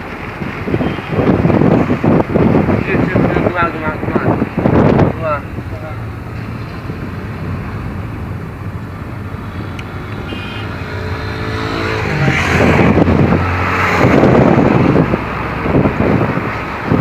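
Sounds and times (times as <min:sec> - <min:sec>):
road noise: 0:00.0 - 0:17.0
vehicle engine hum: 0:00.0 - 0:17.0.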